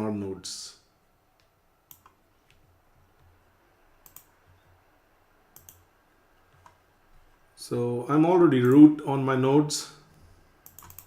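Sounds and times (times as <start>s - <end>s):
computer input clicks: 1.9s - 2.2s, 4.0s - 4.3s, 5.6s - 5.8s, 10.6s - 11.0s.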